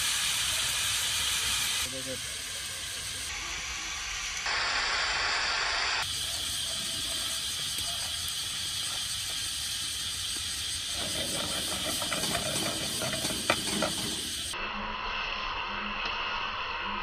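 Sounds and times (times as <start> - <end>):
food sizzling in a pan: 0.0 - 17.0
pan clattering: 10.9 - 14.6.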